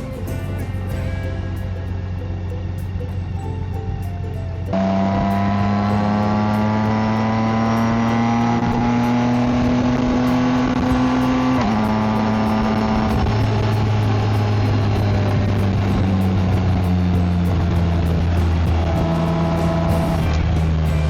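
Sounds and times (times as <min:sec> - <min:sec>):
motorcycle engine accelerating: 0:04.7 - 0:21.0.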